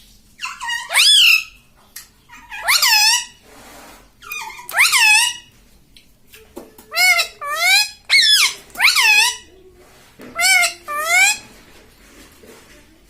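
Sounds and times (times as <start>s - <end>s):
parrot calling: 0.4s - 1.6s, 2.2s - 3.4s, 4.2s - 5.6s, 6.8s - 9.5s, 10.3s - 11.5s.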